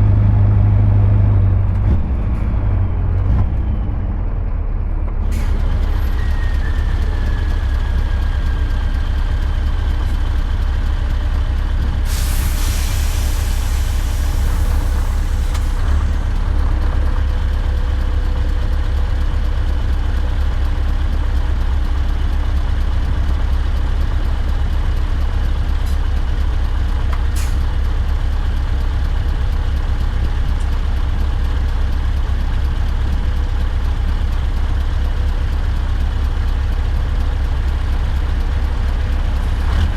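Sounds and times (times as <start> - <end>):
diesel truck engine rumbling: 0.0 - 39.9
hiss: 12.1 - 15.8.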